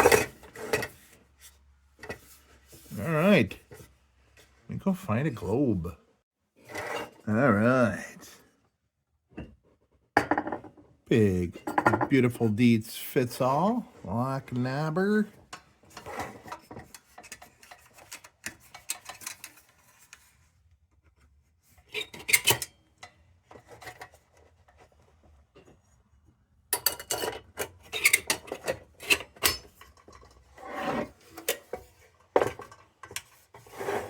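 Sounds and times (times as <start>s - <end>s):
glass globe scraping in tin frame: 33.6s - 34.0s.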